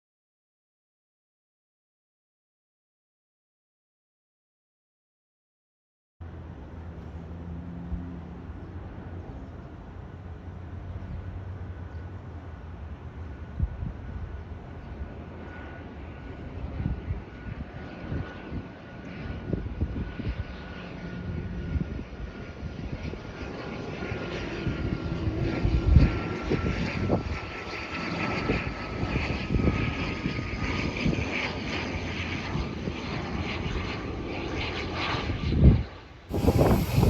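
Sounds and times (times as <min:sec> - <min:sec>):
turboprop engines whining: 0:06.2 - 0:37.0
wind buffeting microphone: 0:13.2 - 0:37.0.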